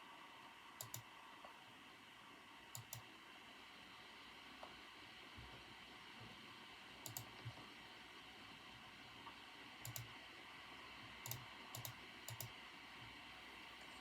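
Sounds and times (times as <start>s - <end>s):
faint steady hiss: 0.0s - 14.0s
computer keyboard keystrokes: 0.8s - 1.0s, 2.8s - 3.1s, 7.1s - 7.4s, 9.9s - 10.1s, 11.2s - 12.6s.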